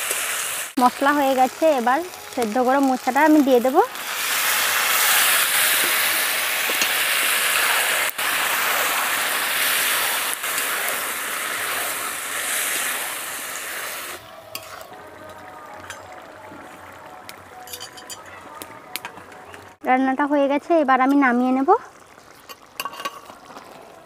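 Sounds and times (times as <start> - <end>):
food sizzling in a pan: 0.0 - 19.8, 20.6 - 24.0
steel spatula stirring: 13.7 - 16.0, 22.4 - 23.5.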